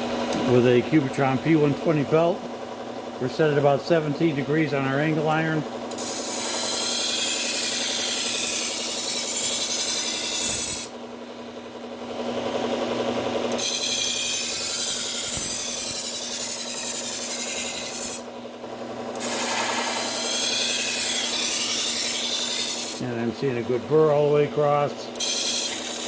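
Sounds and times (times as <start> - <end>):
belt grinder running: 0.0 - 23.2, 25.0 - 26.0
knife grinding on belt grinder: 5.8 - 11.0, 12.2 - 23.2, 24.9 - 26.0.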